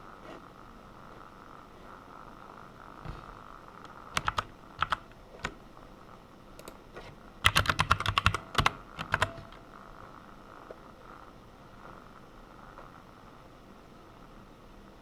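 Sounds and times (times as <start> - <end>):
keyboard typing: 4.1 - 5.6, 6.6 - 9.6.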